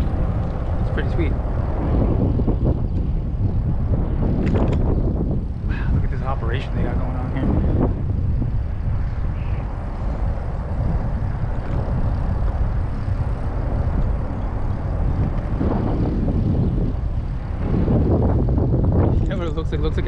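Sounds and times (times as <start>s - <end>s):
road noise: 0.0s - 20.0s
rushing wind: 0.0s - 20.0s
traffic: 0.0s - 20.0s.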